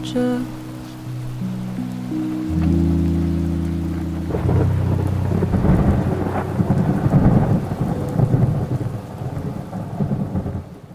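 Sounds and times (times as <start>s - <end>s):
song final chord: 0.0s - 9.0s
steady rain: 0.0s - 10.9s
rolling thunder: 3.8s - 10.9s.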